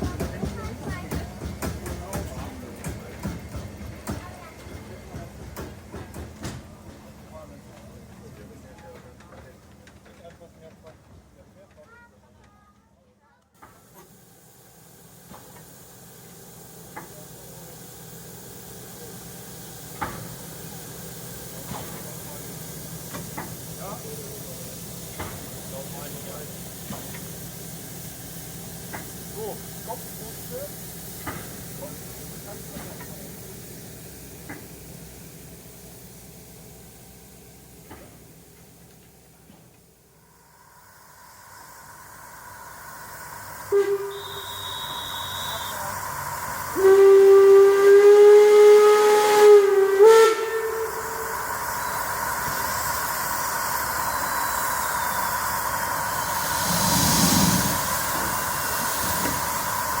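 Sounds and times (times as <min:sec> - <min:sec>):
steam hissing: 0:13.6 - 0:38.9, 0:39.6 - 1:00.0
steam locomotive whistle: 0:43.6 - 0:52.2
shrill high whistle: 0:43.7 - 0:46.0.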